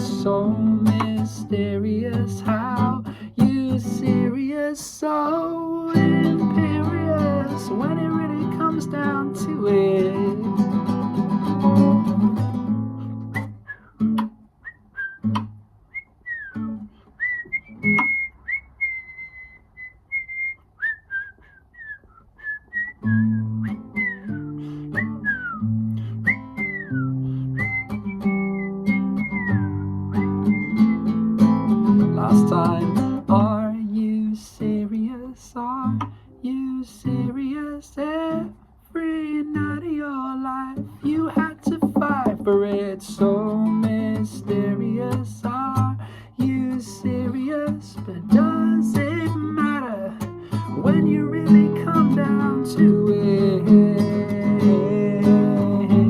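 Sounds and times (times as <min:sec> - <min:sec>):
acoustic guitar: 0:00.0 - 0:56.0
whistled melody: 0:13.0 - 0:31.4.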